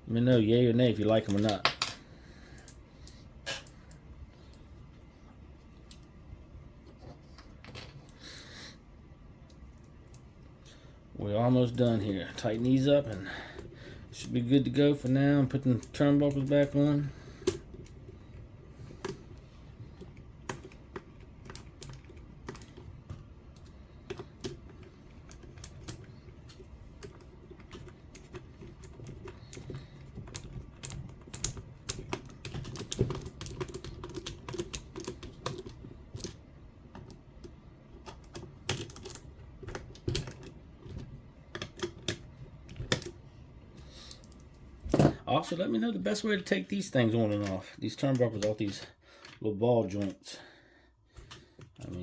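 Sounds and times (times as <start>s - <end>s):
small parts and hand tools clicking: 0.3s - 6.2s, 11.7s - 43.2s.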